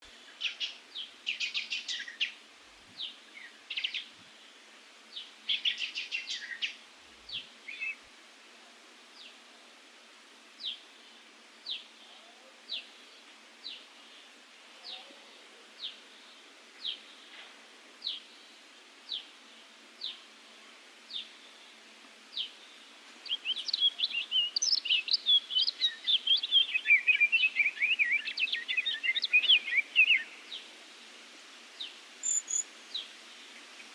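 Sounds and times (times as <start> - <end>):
small birds calling: 3.0 - 8.0, 22.4 - 30.7, 31.8 - 33.9.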